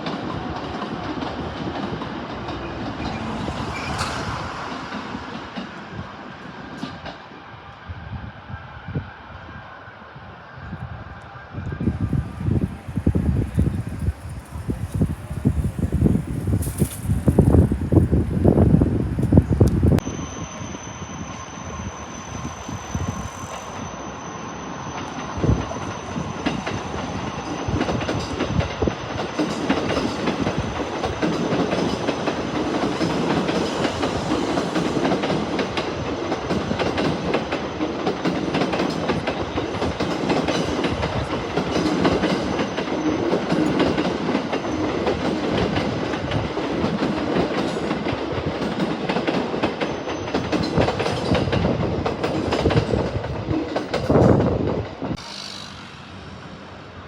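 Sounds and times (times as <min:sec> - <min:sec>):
electric train passing: 0:00.0 - 0:57.0
wheels clacking over rail joints: 0:25.0 - 0:55.9.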